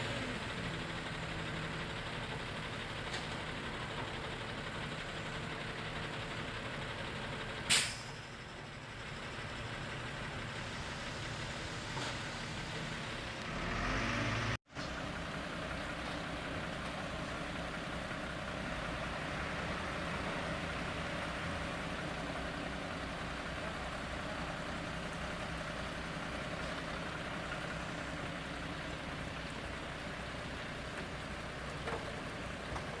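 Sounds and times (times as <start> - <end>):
engine running: 0.0 - 33.0
short sharp hiss: 7.7 - 8.2.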